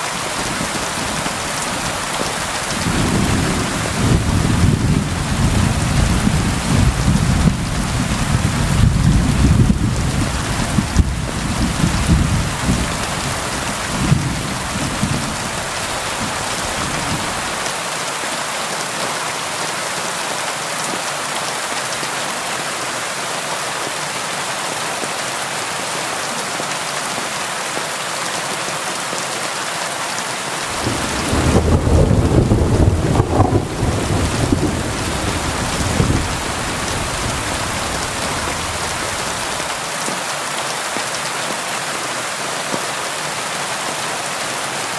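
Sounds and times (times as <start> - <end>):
rain against a window: 0.1 - 18.0, 30.6 - 41.7
thunder rumbling: 0.3 - 17.6, 30.7 - 39.8.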